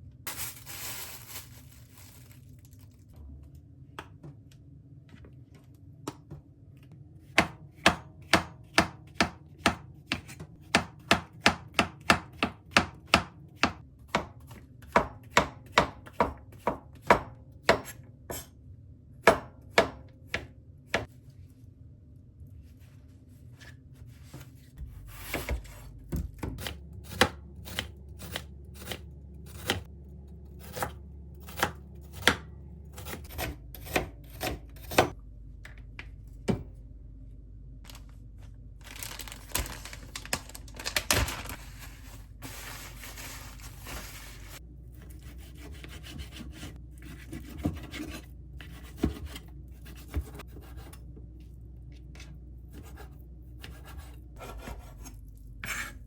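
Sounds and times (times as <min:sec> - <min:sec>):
knife chopping on cutting board: 0:07.4 - 0:18.5, 0:26.1 - 0:29.9, 0:30.6 - 0:35.2, 0:45.4 - 0:50.9
knife scraping cutting board: 0:26.6 - 0:29.9, 0:42.5 - 0:51.0, 0:52.7 - 0:56.0.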